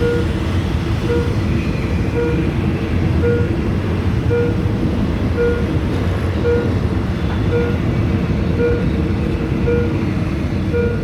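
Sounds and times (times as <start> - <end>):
level crossing signal beeping: 0.0 - 0.4, 1.0 - 1.5, 2.1 - 2.6, 3.2 - 3.6, 4.2 - 4.7, 5.4 - 5.8, 6.4 - 6.8, 7.5 - 7.9, 8.5 - 9.0, 9.6 - 10.0, 10.7 - 11.0
train rumbling past: 0.0 - 11.0.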